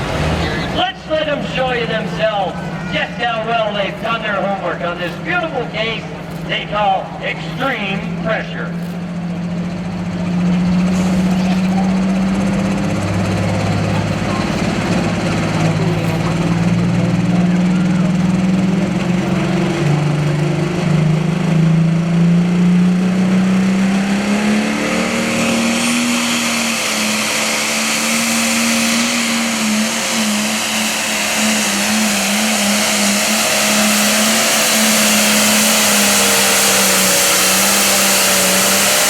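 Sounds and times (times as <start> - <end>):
tractor engine at full power: 0.0 - 39.0.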